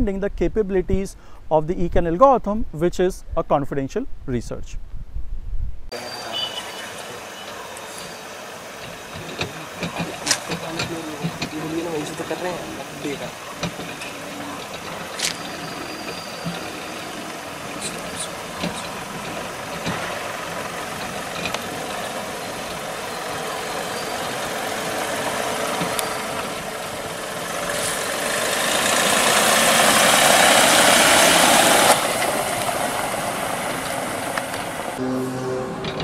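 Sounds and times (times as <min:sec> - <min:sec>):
car engine running at low speed: 0:07.3 - 0:35.0.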